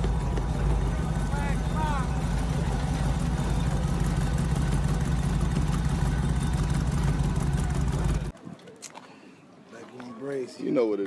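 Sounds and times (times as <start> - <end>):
car engine running at low revs: 0.0 - 8.3.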